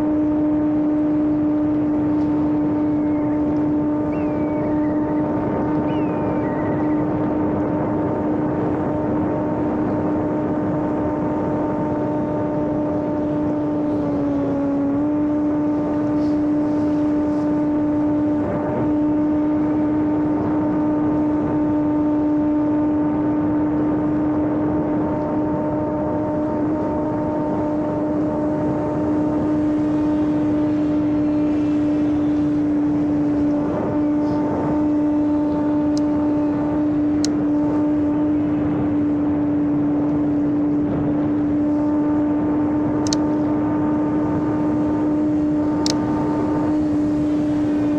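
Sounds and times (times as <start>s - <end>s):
rc airplane motor humming: 0.0s - 47.9s
rushing air: 26.3s - 47.9s.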